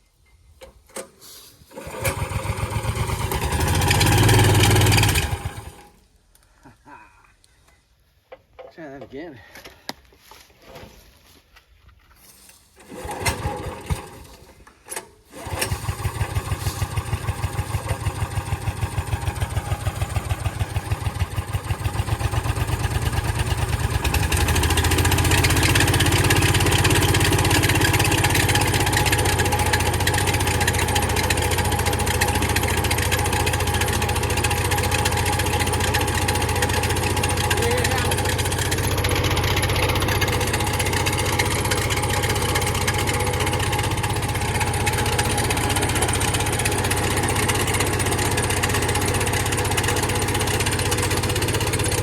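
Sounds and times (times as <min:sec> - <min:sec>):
engine cranking and sputtering: 0:01.7 - 0:06.0, 0:12.8 - 0:52.0
engine running steadily: 0:02.0 - 0:05.8, 0:15.4 - 0:52.0.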